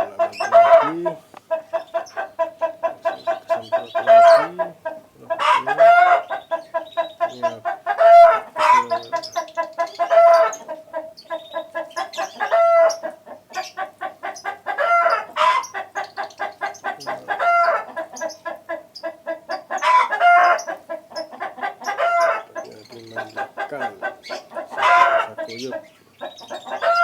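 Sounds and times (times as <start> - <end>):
rooster crowing: 0.0 - 1.2, 26.7 - 27.0
chickens clucking: 0.0 - 27.0.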